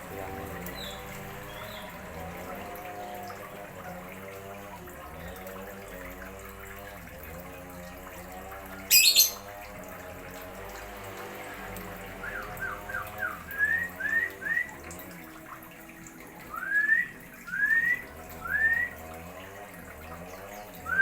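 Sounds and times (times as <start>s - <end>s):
whistled notes: 16.5s - 18.9s.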